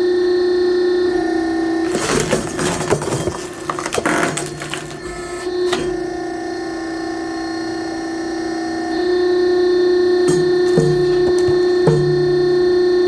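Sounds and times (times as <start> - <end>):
mechanical clattering and rattling: 1.9 - 6.0, 10.3 - 12.4.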